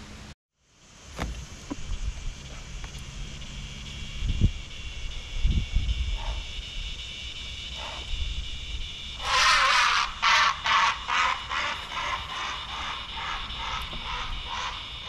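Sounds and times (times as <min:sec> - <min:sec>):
insect trill: 0:00.6 - 0:15.0
bird calling harshly: 0:03.3 - 0:15.0.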